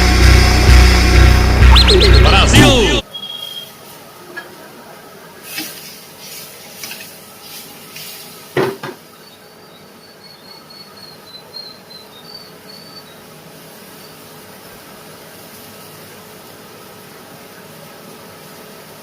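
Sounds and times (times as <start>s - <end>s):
faint high chirping: 1.6s - 2.4s, 3.0s - 3.8s, 9.2s - 13.3s.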